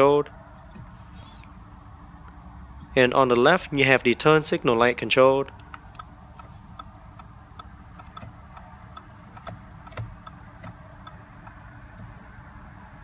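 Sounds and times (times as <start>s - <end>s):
turn signal ticking: 5.5s - 13.0s.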